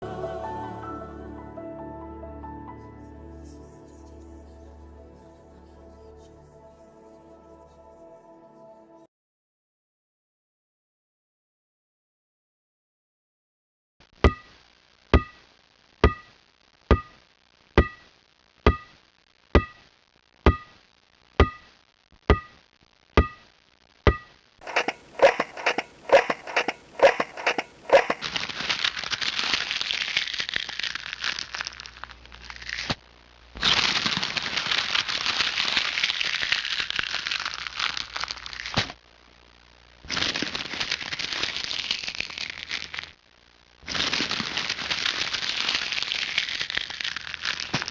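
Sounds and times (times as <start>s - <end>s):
ball bouncing with ringing tone: 14.3s - 14.6s, 15.2s - 15.4s, 16.0s - 17.2s, 17.8s - 18.1s, 18.7s - 19.0s, 19.6s - 19.9s, 20.5s - 20.8s, 21.4s - 22.6s, 23.2s - 23.5s, 24.1s - 24.4s
paper being crumpled: 24.6s - 33.0s, 33.6s - 39.0s, 40.1s - 43.1s, 43.9s - 47.9s.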